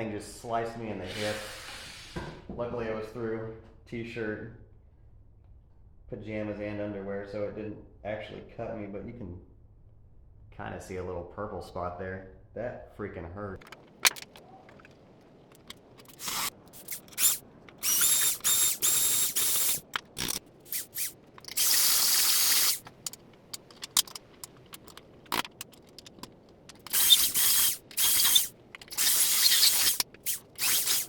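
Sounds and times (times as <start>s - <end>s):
power drill whining: 16.1s - 22.8s, 26.9s - 31.0s
tool clicks and knocks: 22.8s - 27.1s.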